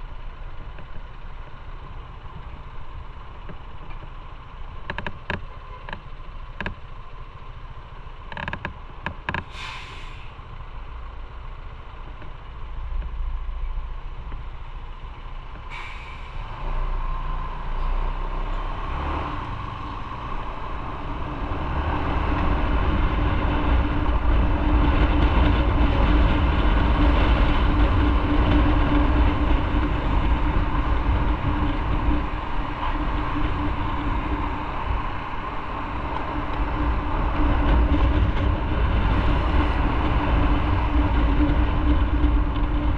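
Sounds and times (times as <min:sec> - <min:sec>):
short hiss: 0:09.5 - 0:10.4, 0:15.7 - 0:16.4
motorcycle engine: 0:16.6 - 0:42.9
wind noise: 0:18.8 - 0:42.9.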